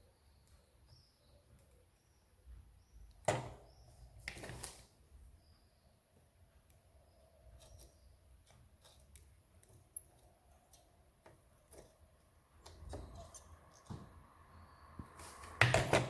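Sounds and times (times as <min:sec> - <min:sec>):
small clicks and taps: 0:07.6 - 0:14.2.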